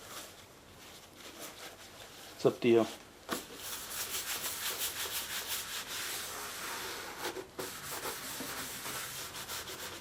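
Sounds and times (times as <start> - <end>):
rubbing on sheet-steel fender: 3.6 - 7.0, 7.6 - 10.0.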